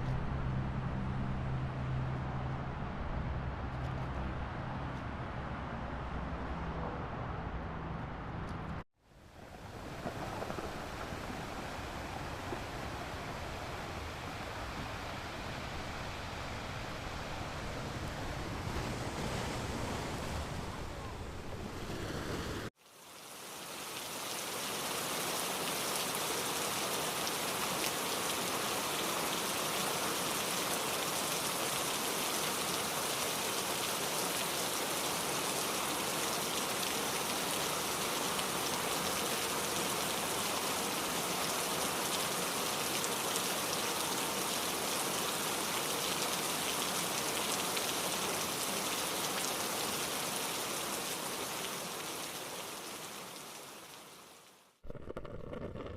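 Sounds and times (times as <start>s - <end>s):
low rushing wind-like noise: 0.0s - 22.7s
rain hissing: 9.2s - 17.9s, 22.8s - 55.9s.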